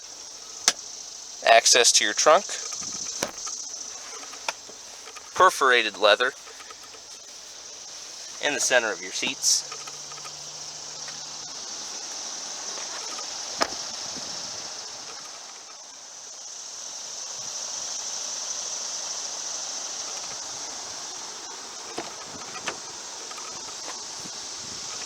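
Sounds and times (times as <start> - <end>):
high-pitched insect chorus: 0.0 - 25.0
sharp click: 2.6 - 3.6.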